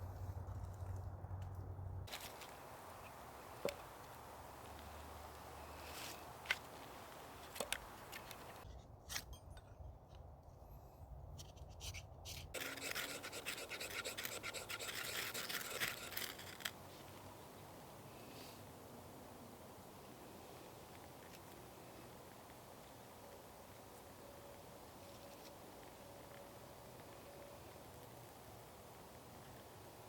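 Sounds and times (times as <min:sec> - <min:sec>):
scraping and rubbing handling: 0:12.4 - 0:17.1
scratchy rustling: 0:12.6 - 0:17.1.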